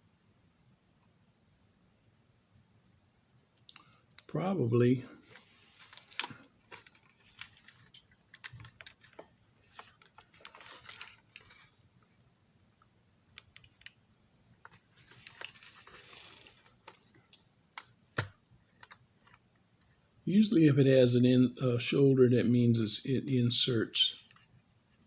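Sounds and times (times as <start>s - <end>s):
light scraping of plastic parts: 5.1s - 11.8s, 14.6s - 19.9s.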